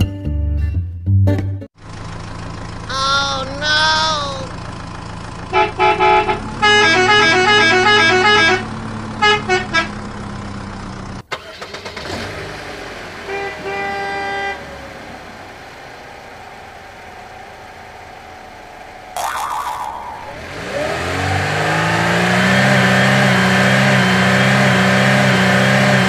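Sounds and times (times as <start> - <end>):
low engine hum: 1.8 - 26.0
stepping horn tune: 5.5 - 10.0
vehicle horn beeps: 5.5 - 10.0, 13.2 - 14.7.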